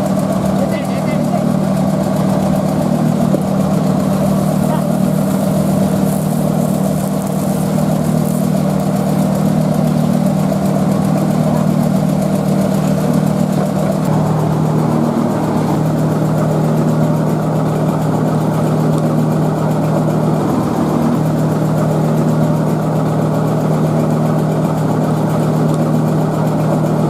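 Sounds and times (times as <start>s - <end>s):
motor droning: 0.0s - 27.0s.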